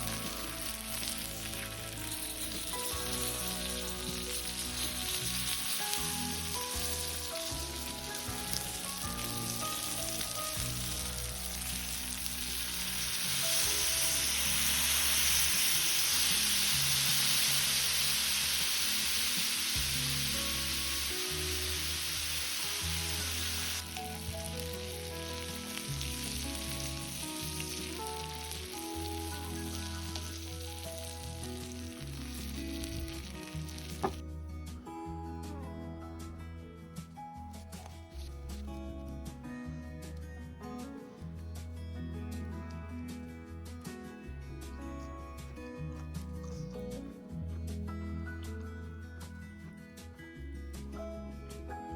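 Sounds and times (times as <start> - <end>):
food frying sizzle: 0.0 - 34.2
background music with bass: 0.0 - 51.9.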